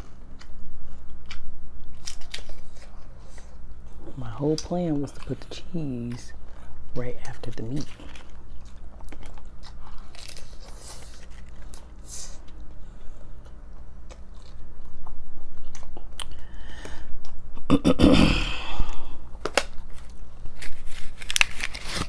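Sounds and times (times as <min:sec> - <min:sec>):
taco shells crunching: 0:00.0 - 0:17.6, 0:18.8 - 0:22.0.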